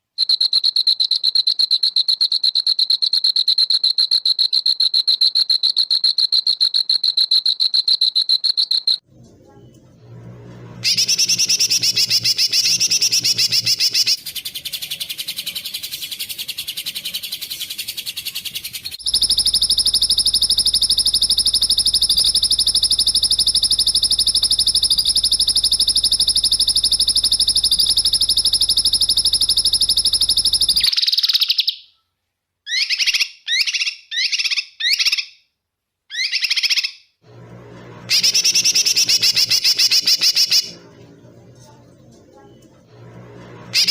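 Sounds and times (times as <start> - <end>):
rapid chattering calls: 10.8 - 20.3, 38.1 - 40.8
high buzzing trill: 19.0 - 30.9
long high-pitched trill: 19.0 - 30.9, 42.9 - 43.9.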